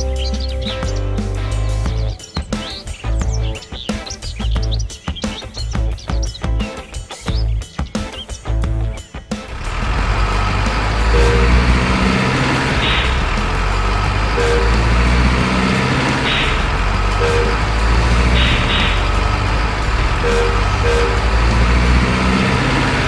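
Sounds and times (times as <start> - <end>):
truck engine running: 8.6 - 23.0.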